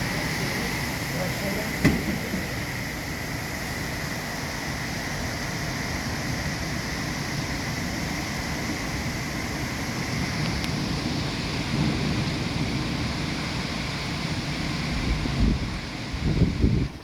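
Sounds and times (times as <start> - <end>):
heavy rain: 0.0 - 17.0
wind buffeting microphone: 5.8 - 17.0.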